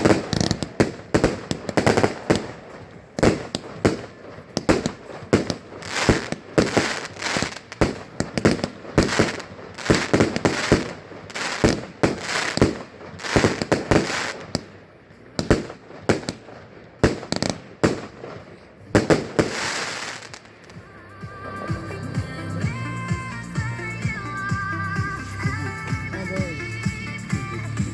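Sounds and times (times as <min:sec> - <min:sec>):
firework shells bursting: 0:00.0 - 0:14.8, 0:15.4 - 0:20.8
fireworks crackling: 0:00.0 - 0:27.9.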